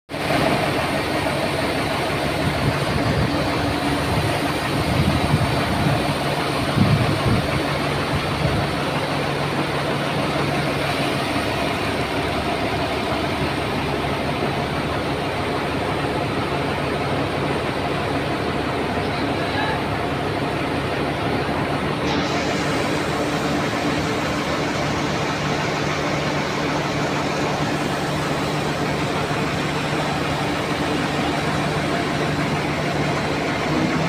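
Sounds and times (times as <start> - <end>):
crane engine running: 0.1 - 34.0.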